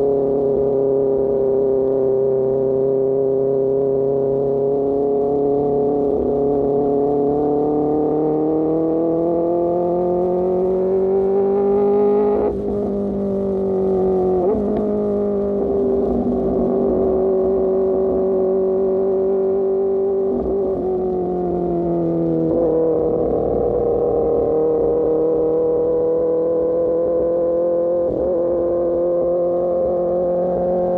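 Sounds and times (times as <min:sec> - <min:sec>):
motorbike engine revving: 0:07.2 - 0:19.0.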